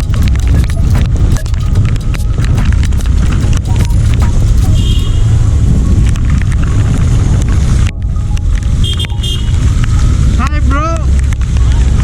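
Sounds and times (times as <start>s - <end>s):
heavy rain falling: 0.0s - 10.4s.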